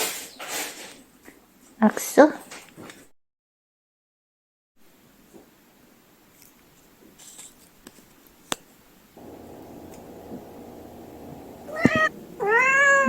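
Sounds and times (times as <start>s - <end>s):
faint rustling and ticking: 9.2s - 12.4s
low steady hum: 9.2s - 13.0s
cat meowing: 11.7s - 13.0s.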